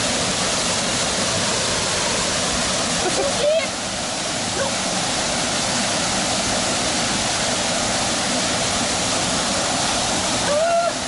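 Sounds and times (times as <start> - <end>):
small waterfall pouring: 0.0 - 11.0.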